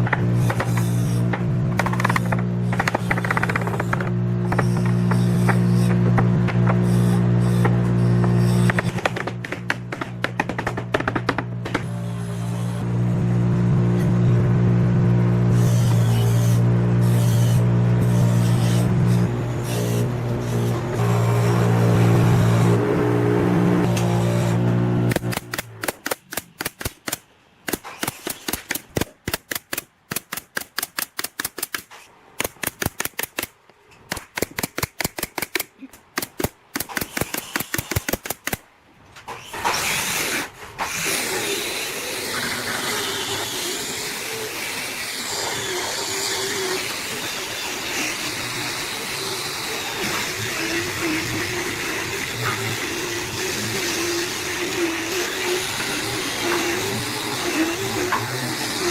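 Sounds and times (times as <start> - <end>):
rapid regular knocks: 0.0 - 6.8, 7.6 - 11.9.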